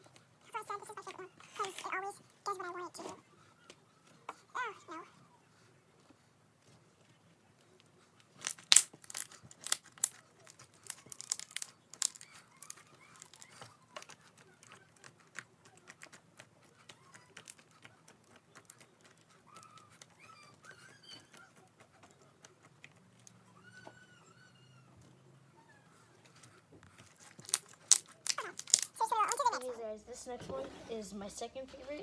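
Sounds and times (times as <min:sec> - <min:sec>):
slime crackling clicks and pops: 0:08.4 - 0:13.4, 0:27.4 - 0:29.4.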